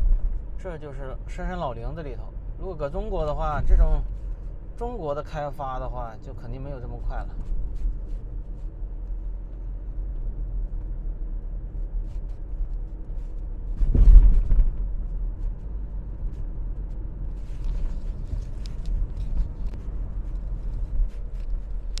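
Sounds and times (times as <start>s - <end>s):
car road rumble: 0.0s - 22.0s
loud thump: 13.8s - 14.9s.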